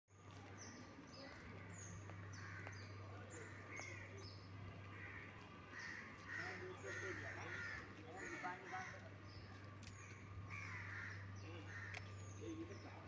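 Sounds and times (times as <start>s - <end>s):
small birds chirping: 0.1s - 13.0s.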